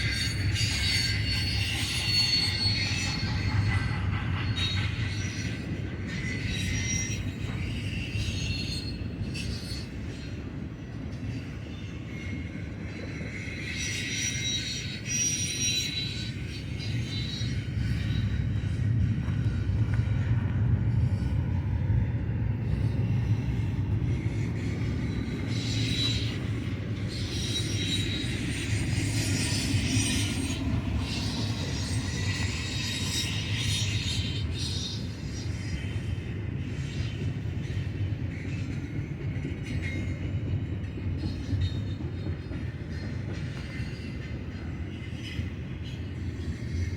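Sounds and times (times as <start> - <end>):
high wheel squeal: 0.0 - 10.4, 11.6 - 18.7, 22.7 - 38.5
freight train rumbling past: 0.0 - 46.9.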